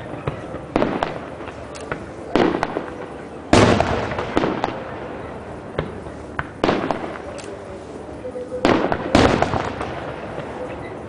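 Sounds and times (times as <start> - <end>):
fireworks crackles: 0.0 - 11.0
fireworks shells booming: 0.2 - 5.1, 5.7 - 7.4, 8.6 - 10.9.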